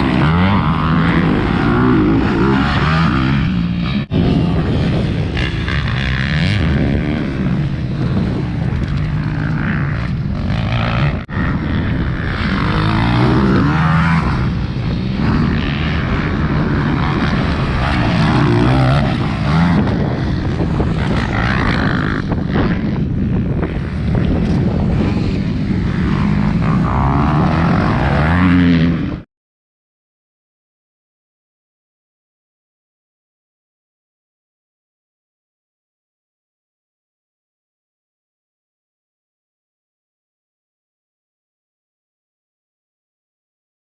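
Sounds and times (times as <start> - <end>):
motocross bike engines revving: 0.0 - 29.2.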